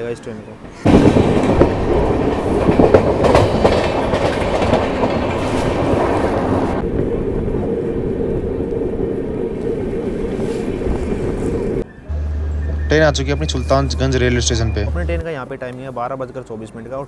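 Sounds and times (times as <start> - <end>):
dull train rumble: 0.0 - 15.3
train wheels clattering over rails: 0.6 - 6.8.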